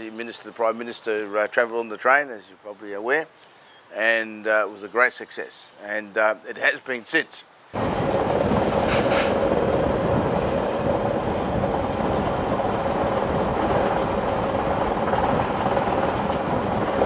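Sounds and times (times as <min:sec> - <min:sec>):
train wheels rumbling on rails: 0:07.8 - 0:17.0.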